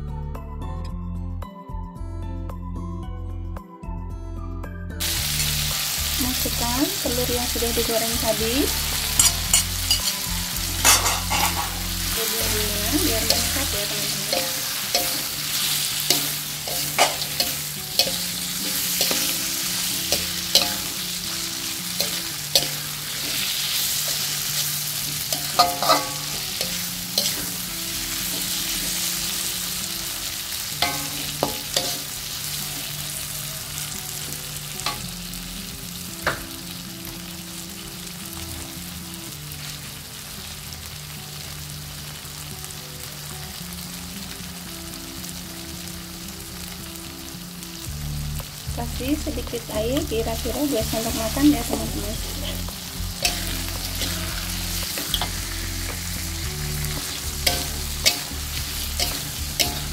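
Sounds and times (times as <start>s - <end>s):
food sizzling in a wok: 5.0s - 59.9s
metal spatula scraping and clinking: 9.2s - 11.9s, 13.2s - 29.4s, 30.8s - 32.2s, 52.4s - 56.2s, 56.8s - 59.9s.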